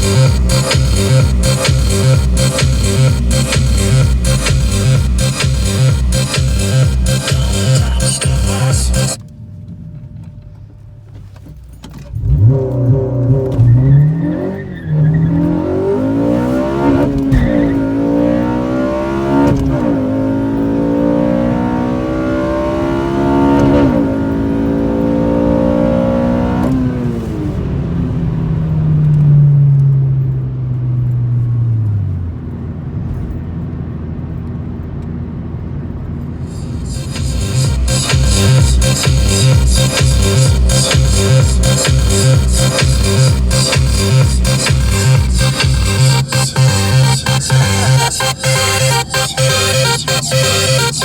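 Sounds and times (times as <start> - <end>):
car engine revving at full throttle: 0.0 - 9.2, 12.2 - 29.2, 36.3 - 51.0
car engine idling: 0.0 - 9.7, 36.1 - 51.0.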